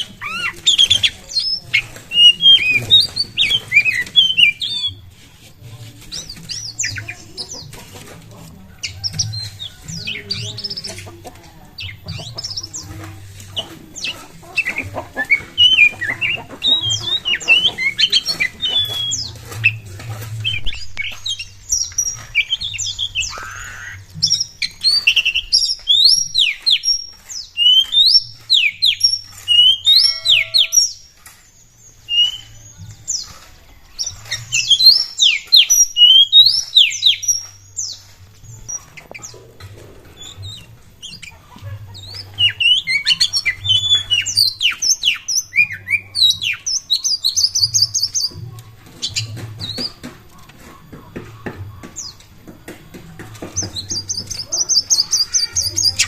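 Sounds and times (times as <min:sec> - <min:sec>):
bird singing whistled notes: 0:00.0 - 0:05.1, 0:14.0 - 0:19.8, 0:20.4 - 0:39.4, 0:40.1 - 0:48.4.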